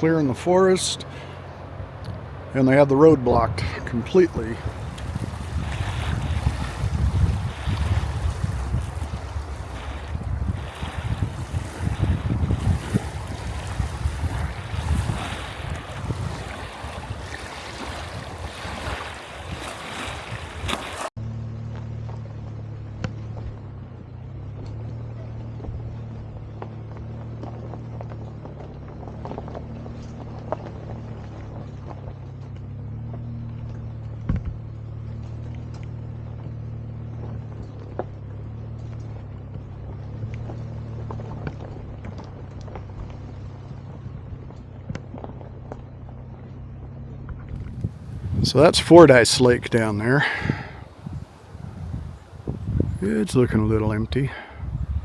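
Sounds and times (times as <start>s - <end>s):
low engine drone: 0.0s - 5.8s, 47.8s - 54.8s
wind buffeting microphone: 0.0s - 21.1s, 47.5s - 55.0s.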